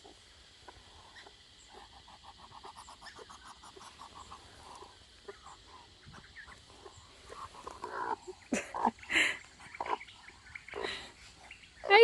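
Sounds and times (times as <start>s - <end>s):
hens clucking faintly: 0.0s - 12.0s.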